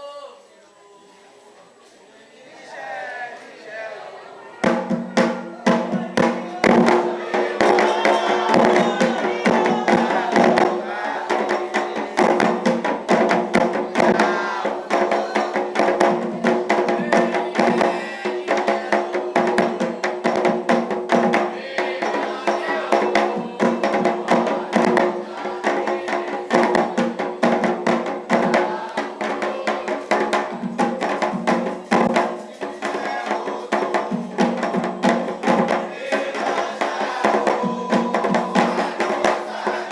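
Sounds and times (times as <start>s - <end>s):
group singing a chant: 2.4s - 39.9s
hand drums beating: 4.6s - 39.9s.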